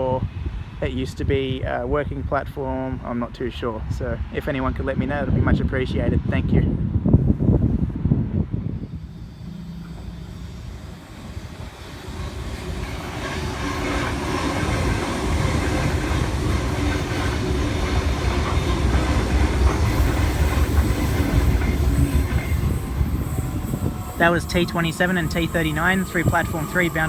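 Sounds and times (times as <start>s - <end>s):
electric train passing: 7.4s - 27.0s.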